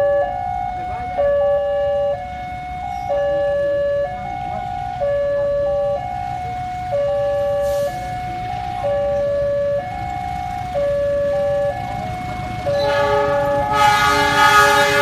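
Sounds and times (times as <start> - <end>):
level crossing two-tone alarm: 0.0 - 15.0.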